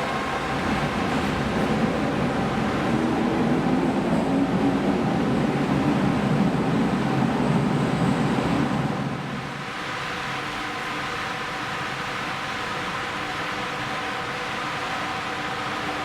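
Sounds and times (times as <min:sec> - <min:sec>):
subway train wheels rumbling: 0:00.0 - 0:16.0.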